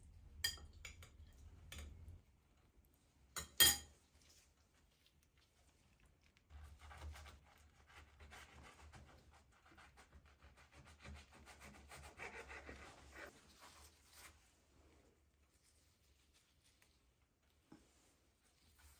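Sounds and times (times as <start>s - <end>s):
rubbing and scratching: 6.4s - 14.7s.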